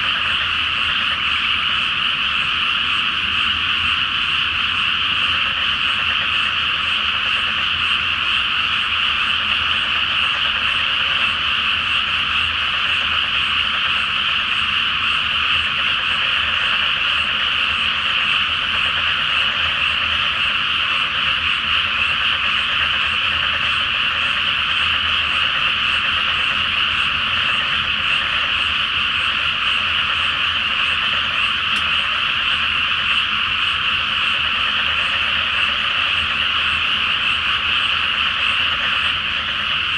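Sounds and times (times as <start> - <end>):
chorus of frogs calling: 0.0 - 39.9.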